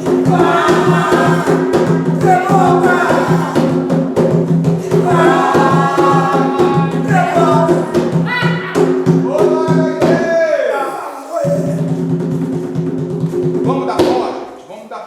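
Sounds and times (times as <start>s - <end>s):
group of voices chanting: 0.0s - 4.0s, 4.8s - 11.9s
regular drumming: 0.0s - 10.5s, 11.3s - 14.7s.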